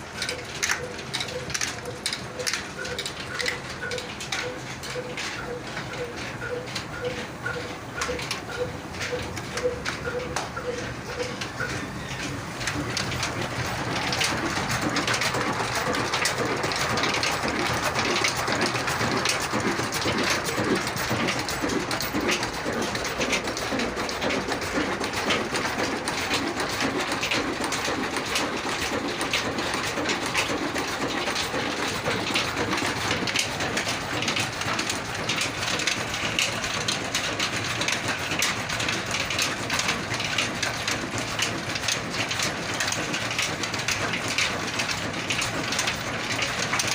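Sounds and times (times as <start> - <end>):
diesel engine clattering: 0.0 - 46.9.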